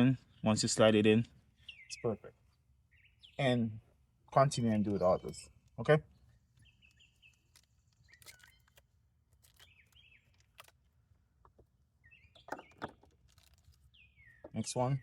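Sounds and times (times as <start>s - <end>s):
faint bird chirps: 4.9s - 15.0s.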